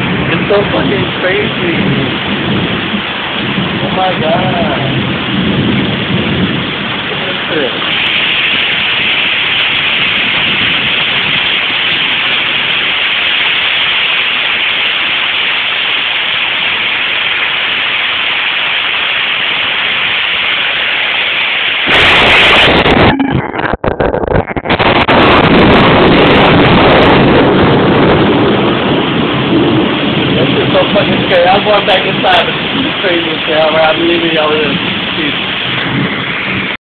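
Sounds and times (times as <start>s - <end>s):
thunder crack and rumble: 0.0s - 15.2s, 21.8s - 36.8s
heavy rain pouring: 0.0s - 36.8s.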